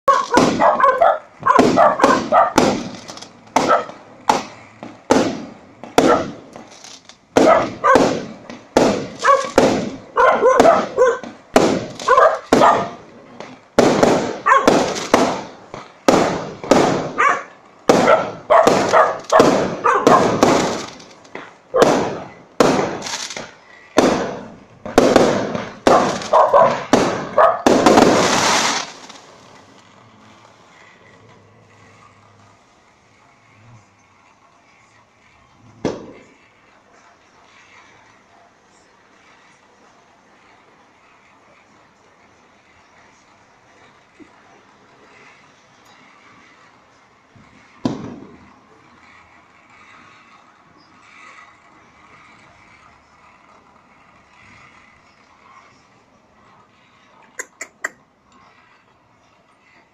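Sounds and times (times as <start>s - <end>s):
fireworks bangs: 0.0s - 41.9s, 42.5s - 57.1s
fireworks crackling burst: 0.0s - 59.9s
dogs barking: 0.1s - 2.7s, 3.6s - 4.0s, 6.0s - 6.4s, 7.4s - 8.2s, 9.2s - 11.4s, 12.0s - 13.0s, 14.4s - 14.9s, 17.1s - 20.4s, 25.9s - 27.7s.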